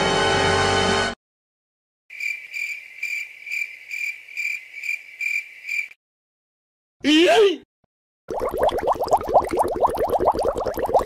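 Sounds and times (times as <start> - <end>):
cricket chirping: 2.1 - 6.0.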